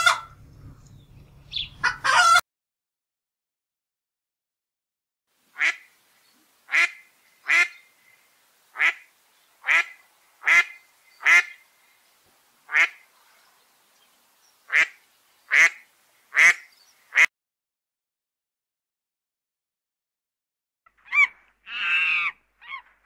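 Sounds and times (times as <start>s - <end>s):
duck quacking: 0.0s - 0.4s, 1.5s - 2.4s, 5.6s - 5.9s, 6.7s - 7.8s, 8.8s - 11.6s, 12.7s - 13.0s, 14.7s - 17.3s, 21.0s - 23.0s.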